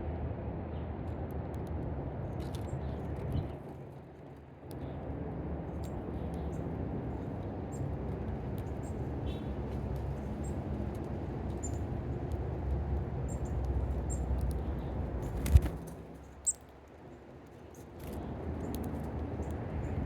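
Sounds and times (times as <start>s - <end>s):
small birds chirping: 5.8s - 20.0s.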